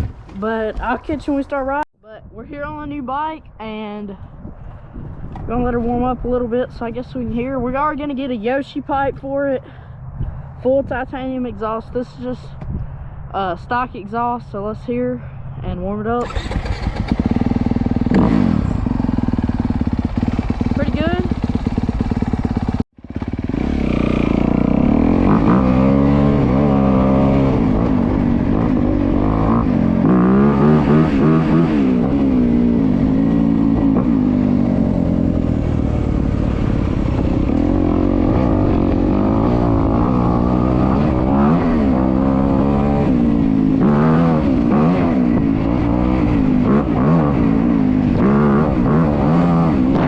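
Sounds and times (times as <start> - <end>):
motorcycle engine revving: 16.2 - 50.0.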